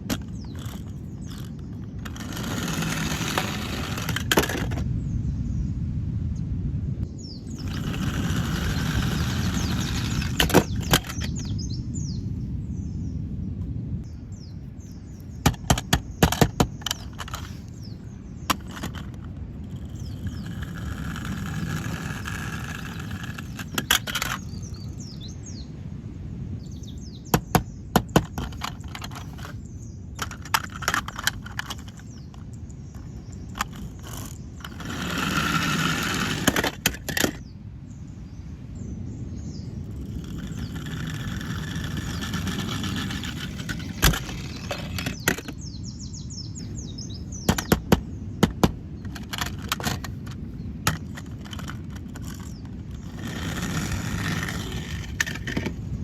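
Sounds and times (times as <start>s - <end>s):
plastic toys clicking: 0.0s - 4.8s, 15.5s - 17.6s, 18.5s - 24.6s, 27.4s - 29.6s, 30.2s - 32.4s, 33.0s - 37.4s, 47.5s - 55.8s
birds chirping: 0.0s - 5.8s, 7.0s - 56.0s.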